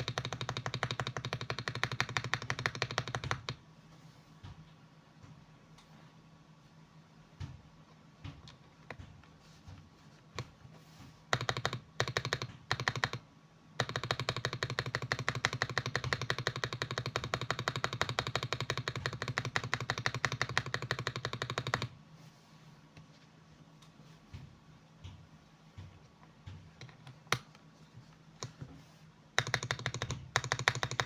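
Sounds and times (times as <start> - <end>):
mechanical keyboard typing: 0.0 - 3.6, 11.3 - 22.0, 29.3 - 31.0.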